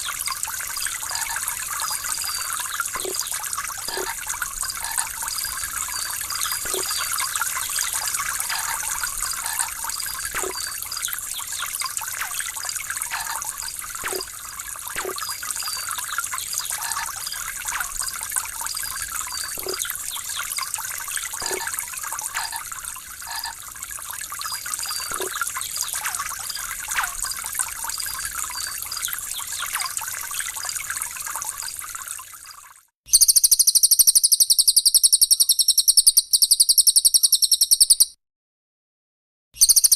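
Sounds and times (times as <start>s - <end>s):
trickling gurgling water: 0.0s - 32.9s
rapid high-pitched bird call: 33.1s - 38.2s, 39.6s - 39.9s.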